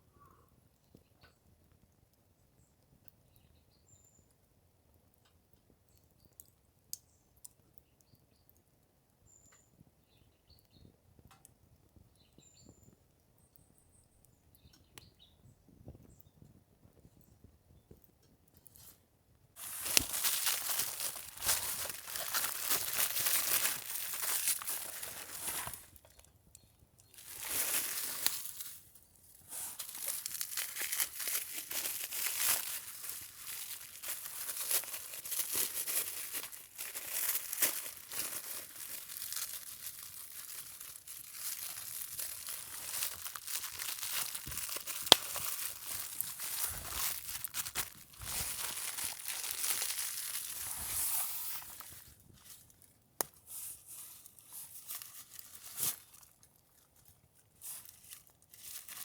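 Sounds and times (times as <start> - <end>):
crinkling and rustling: 19.6 - 59.0.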